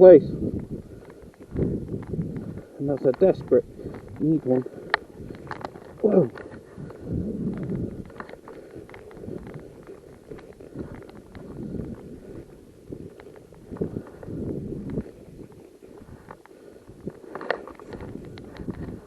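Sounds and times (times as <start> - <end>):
footsteps over rough ground: 0.0 - 19.0
small knocks and clicks: 1.0 - 12.1, 16.0 - 19.0.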